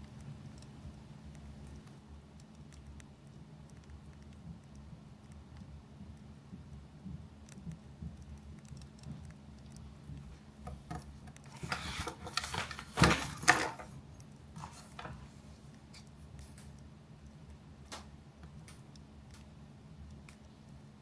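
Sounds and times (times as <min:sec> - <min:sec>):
small objects rustling and clinking: 0:11.0 - 0:15.2.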